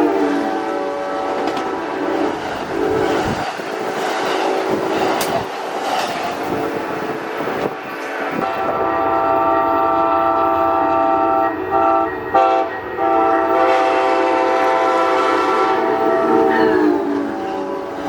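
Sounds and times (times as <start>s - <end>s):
train air horn blasts: 0.0s - 3.3s, 8.3s - 18.0s.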